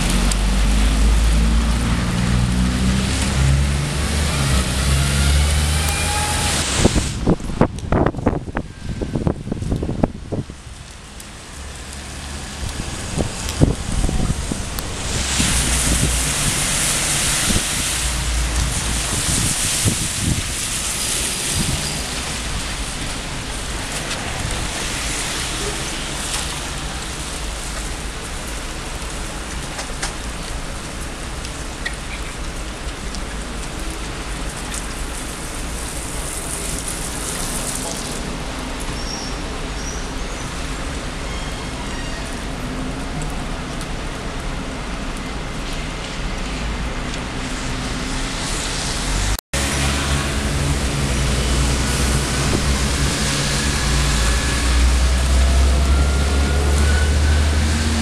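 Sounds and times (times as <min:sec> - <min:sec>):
rain falling on a street: 0:00.0 - 0:58.0
traffic hiss on wet road: 0:00.0 - 0:58.0.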